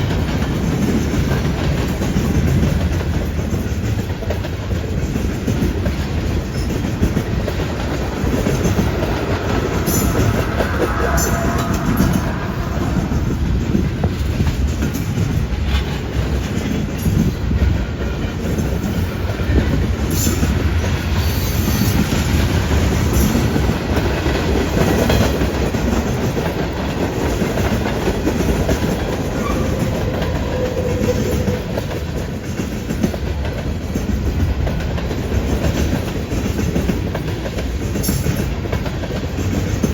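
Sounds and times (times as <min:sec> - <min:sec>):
wheels clacking over rail joints: 0:00.0 - 0:11.5
train cars rumbling past: 0:00.0 - 0:39.9.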